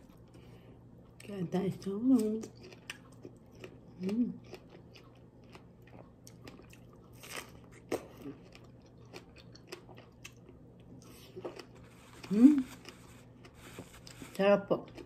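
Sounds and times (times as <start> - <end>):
person biting and chewing: 2.5 - 14.2.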